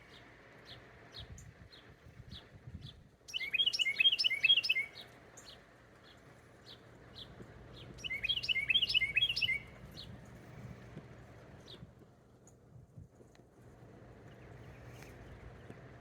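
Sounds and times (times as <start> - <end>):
songbird singing: 0.0 - 16.0
bird chirps: 2.8 - 10.1.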